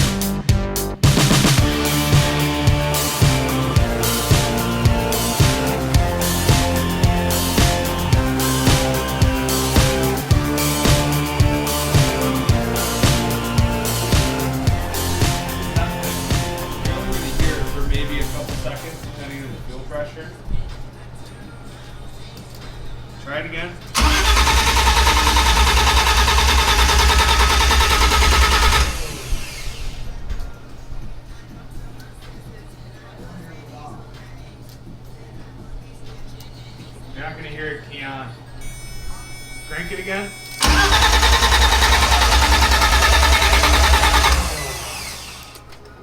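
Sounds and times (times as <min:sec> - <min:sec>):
falling whine: 0:01.2 - 0:19.0, 0:38.6 - 0:45.6
starter cranking engine: 0:24.0 - 0:30.1, 0:40.5 - 0:45.7.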